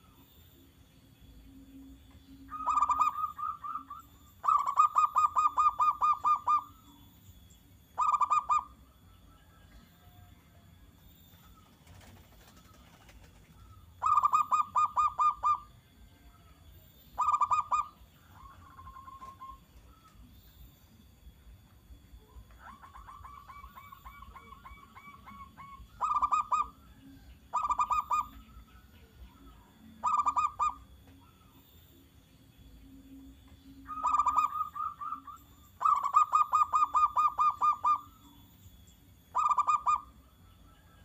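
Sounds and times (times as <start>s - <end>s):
doves cooing: 2.5s - 6.8s, 11.4s - 15.8s, 17.2s - 20.2s, 22.3s - 28.6s, 29.3s - 31.6s, 33.8s - 38.2s.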